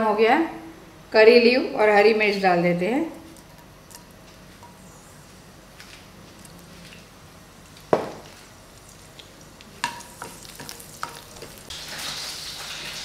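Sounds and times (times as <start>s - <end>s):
leaves sizzling in oil: 8.4s - 13.0s
spatula knocking and scraping pan: 9.8s - 12.2s.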